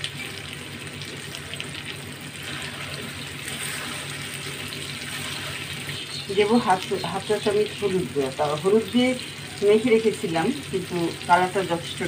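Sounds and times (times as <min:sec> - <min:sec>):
food sizzling in oil: 0:00.0 - 0:12.0
spatula stirring in pan: 0:02.3 - 0:06.0.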